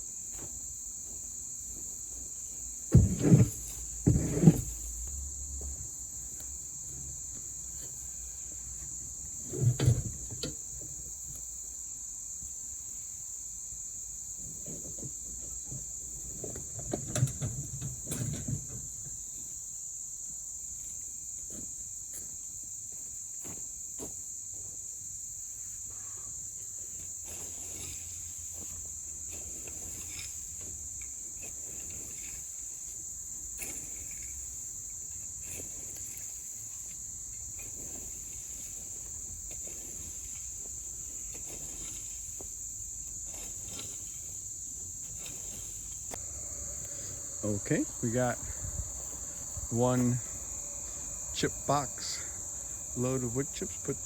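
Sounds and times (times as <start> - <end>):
crickets chirring: 0.0 - 54.0
loud thumps and knocks: 2.9 - 4.6.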